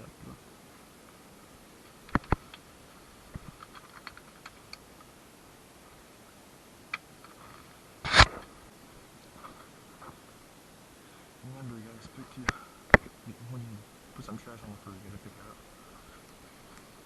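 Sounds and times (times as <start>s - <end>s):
clicks and knocks of handling: 3.3s - 5.1s.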